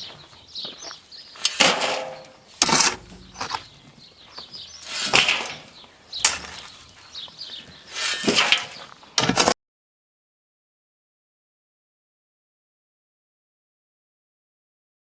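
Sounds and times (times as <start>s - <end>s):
shovel scraping loose fill: 1.4s - 3.7s, 4.8s - 6.7s, 7.9s - 9.5s.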